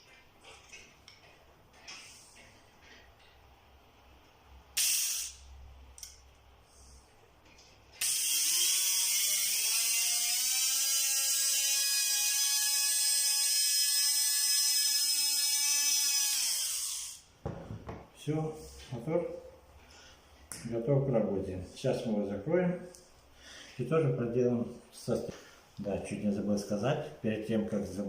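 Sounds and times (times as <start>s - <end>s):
sharp burst of noise: 4.8s - 5.4s.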